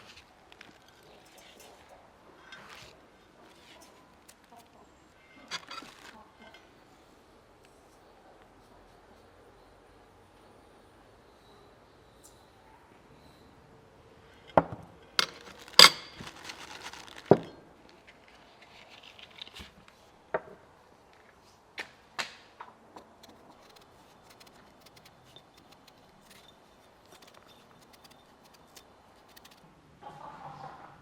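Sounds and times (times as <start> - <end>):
rustling: 5.4 - 6.5, 15.1 - 20.2, 23.1 - 30.8
utensils knocking and clinking: 14.5 - 16.6.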